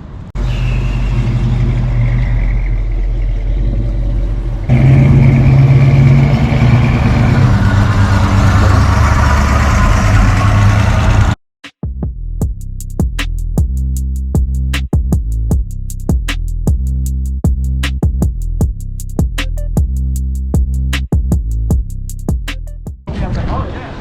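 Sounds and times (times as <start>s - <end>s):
car engine running: 0.9s - 11.4s.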